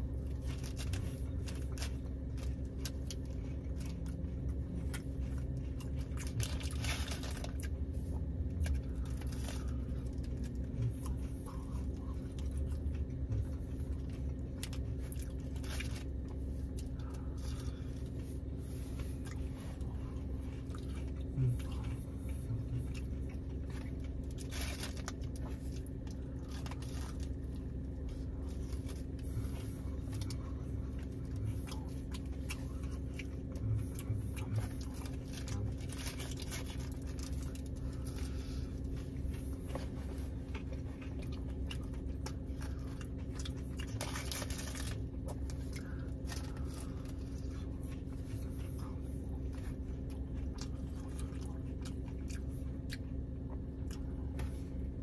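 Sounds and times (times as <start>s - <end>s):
chewing and biting food: 0.0s - 55.0s
low car hum: 0.0s - 55.0s
paper wrapper crinkling: 23.7s - 27.4s.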